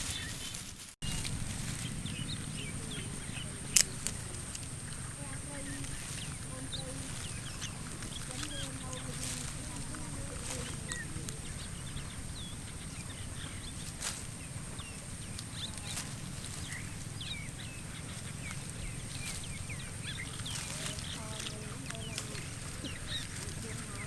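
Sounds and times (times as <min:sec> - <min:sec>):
low rumble: 0:00.0 - 0:24.0
sharp clicks: 0:02.9 - 0:06.5.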